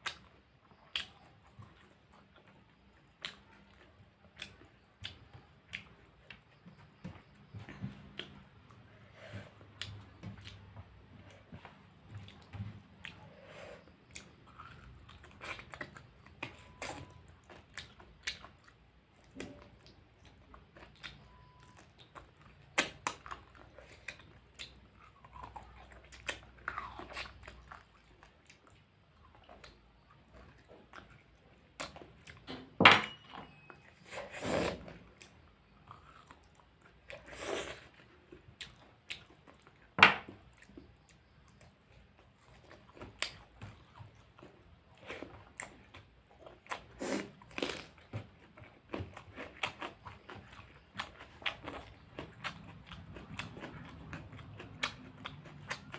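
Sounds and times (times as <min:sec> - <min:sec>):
person chewing food: 0:00.0 - 0:55.9
food crunching: 0:09.7 - 0:32.5, 0:35.0 - 0:55.9.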